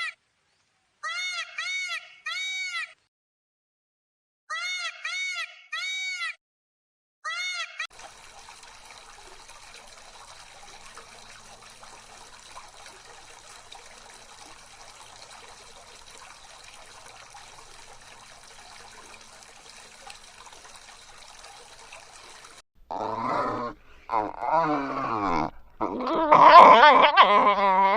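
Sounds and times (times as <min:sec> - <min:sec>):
trickle of running water: 0:07.9 - 0:22.6.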